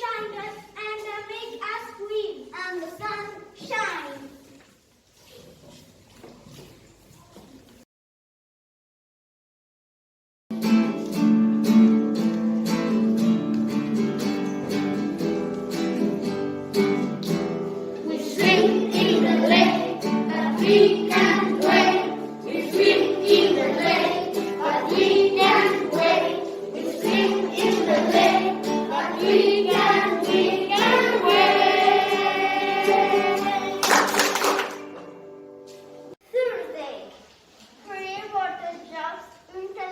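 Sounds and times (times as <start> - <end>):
acoustic guitar strumming: 10.5 - 36.1
children's choir singing: 16.8 - 35.1.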